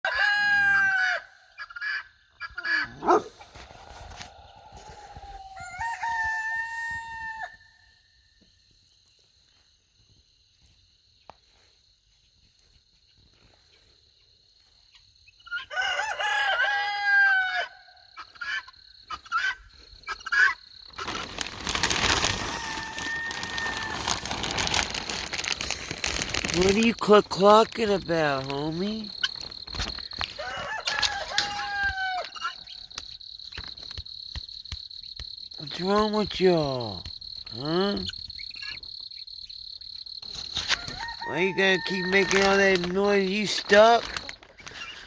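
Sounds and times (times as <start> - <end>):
chicken calling: 0.0 - 7.8, 15.4 - 21.3, 22.3 - 24.3, 40.7 - 45.0
loud rustling: 21.0 - 27.0.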